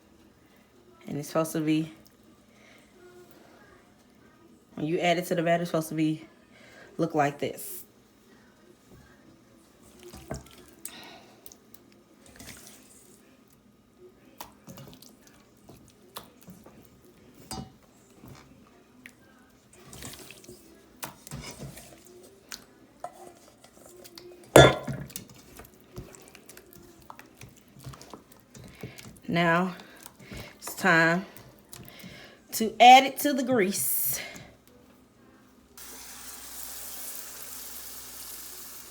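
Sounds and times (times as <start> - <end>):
wet batter squelching: 25.1 - 32.3.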